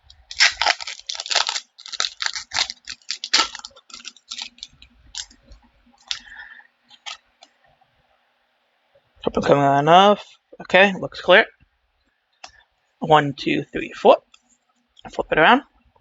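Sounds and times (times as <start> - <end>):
foil card pack crinkling: 0.1 - 5.4, 6.0 - 7.2.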